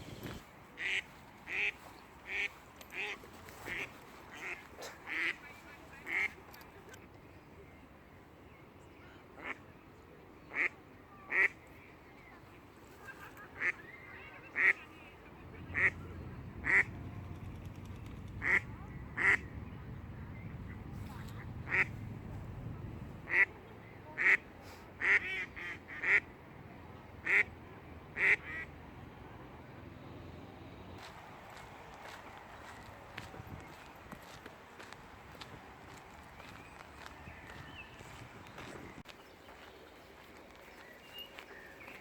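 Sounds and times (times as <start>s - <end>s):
duck quacking: 15.7s - 16.0s, 16.6s - 16.9s, 18.4s - 19.4s, 21.6s - 21.9s, 23.3s - 23.5s, 25.0s - 26.2s, 27.2s - 27.5s, 28.2s - 28.7s.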